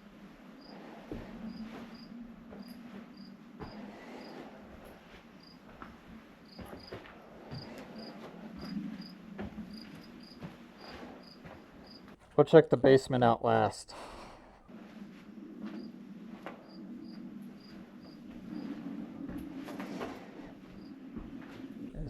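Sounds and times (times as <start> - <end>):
cricket chirping: 0.6 - 0.8, 1.4 - 4.4, 5.4 - 5.7, 6.4 - 7.0, 7.6 - 12.2, 15.7 - 16.0, 16.6 - 19.0, 20.8 - 21.0
low hum: 13.9 - 22.0.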